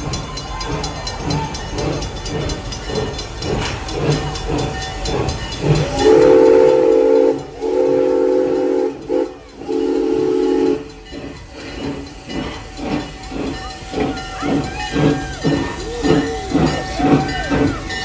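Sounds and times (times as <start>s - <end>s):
crossing bells ringing: 0.0s - 18.0s
train whistle blasts: 5.9s - 11.0s.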